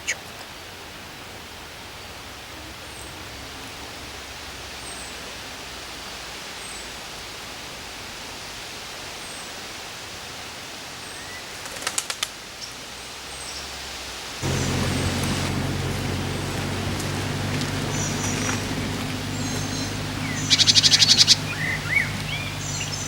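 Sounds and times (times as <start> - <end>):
steady outdoor hiss: 0.0 - 23.0
wingbeats fluttering: 11.5 - 12.4, 14.4 - 23.0
songbirds calling: 14.4 - 23.0.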